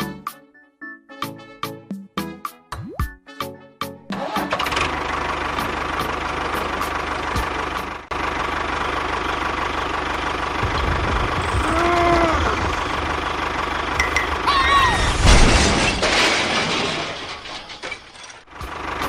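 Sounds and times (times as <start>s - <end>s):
small engine running: 4.3s - 14.5s.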